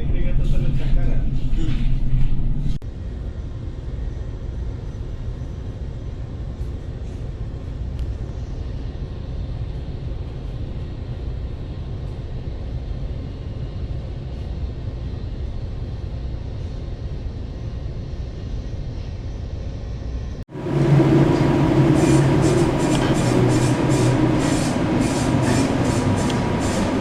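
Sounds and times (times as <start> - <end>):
storm wind: 20.4 - 27.0
ship machinery humming: 20.5 - 27.0.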